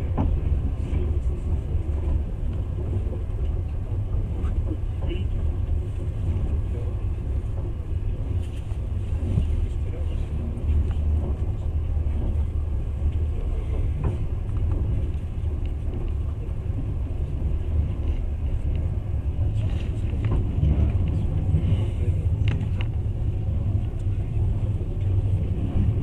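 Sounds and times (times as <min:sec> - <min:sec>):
train rumbling inside carriage: 0:00.0 - 0:26.0.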